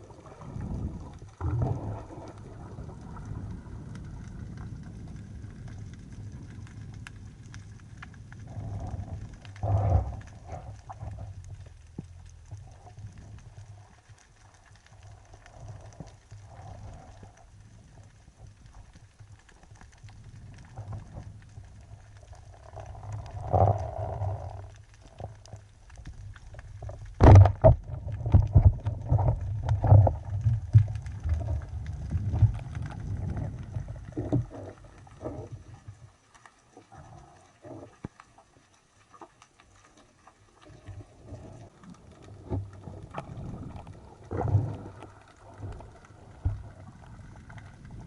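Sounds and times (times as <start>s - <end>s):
underwater rumble of moving water: 0.0s - 48.0s.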